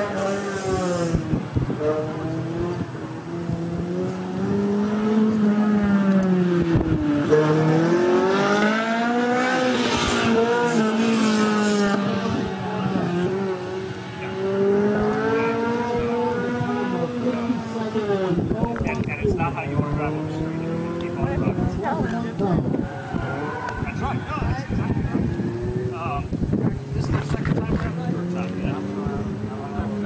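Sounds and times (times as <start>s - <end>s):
tyre noise hiss: 0.0s - 1.5s
car engine revving: 0.0s - 30.0s.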